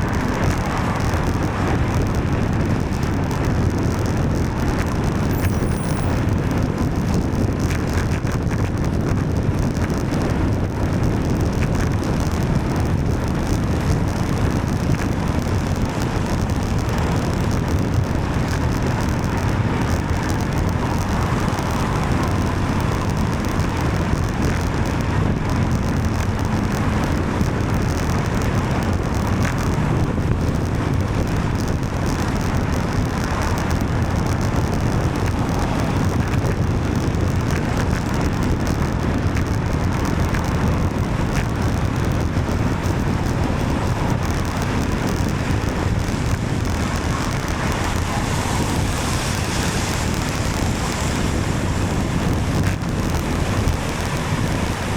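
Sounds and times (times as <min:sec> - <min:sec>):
traffic on a wet road: 0:00.0 - 0:54.9
wind rushing over microphone: 0:00.0 - 0:54.9.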